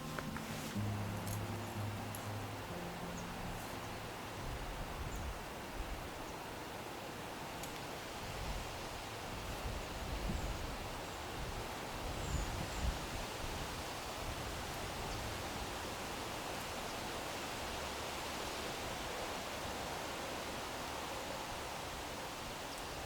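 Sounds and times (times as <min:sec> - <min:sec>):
wind hiss with rustling: 0:00.0 - 0:23.0
wind gusts on microphone: 0:03.2 - 0:06.6, 0:08.1 - 0:16.5.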